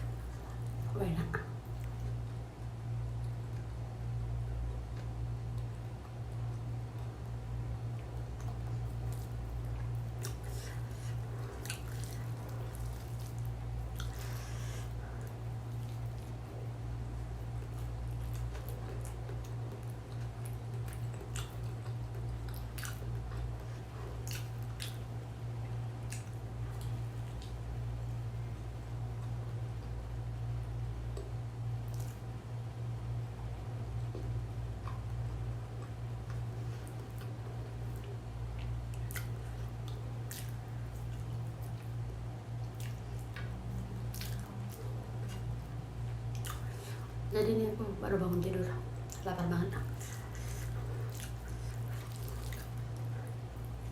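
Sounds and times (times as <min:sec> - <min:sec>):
low hum: 0:00.0 - 0:53.9
person chewing food: 0:04.7 - 0:30.0, 0:34.0 - 0:47.3, 0:49.8 - 0:53.9
wet mouth clicks and smacks: 0:26.0 - 0:27.6, 0:38.0 - 0:41.9.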